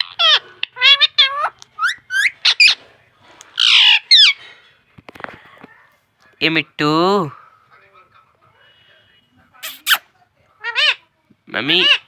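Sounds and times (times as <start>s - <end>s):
parrot squawk: 0.0s - 2.8s, 3.6s - 4.4s, 9.6s - 10.0s, 10.6s - 11.0s, 11.6s - 12.0s
parrot chirping and whistling: 1.8s - 2.8s.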